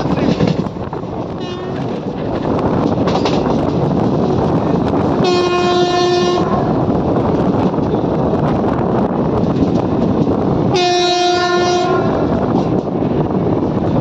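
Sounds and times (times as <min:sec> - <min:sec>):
train wheel and rail noise: 0:00.0 - 0:14.0
train horn blast: 0:01.4 - 0:01.9, 0:05.2 - 0:06.7, 0:10.7 - 0:12.3.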